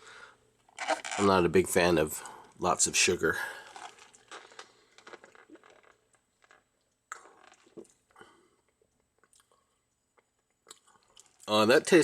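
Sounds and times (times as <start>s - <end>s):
person sipping and swallowing: 3.4s - 11.5s.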